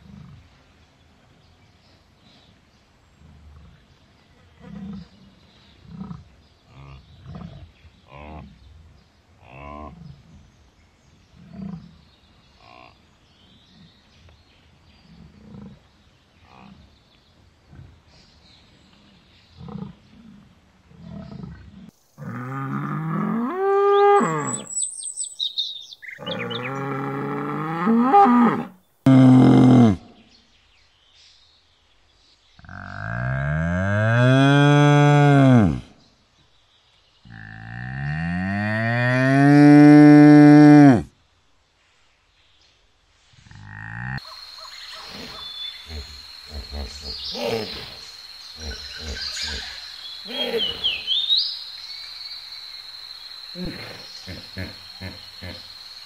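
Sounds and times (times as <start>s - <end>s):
bison grunting: 48.6s - 51.2s, 53.6s - 55.7s.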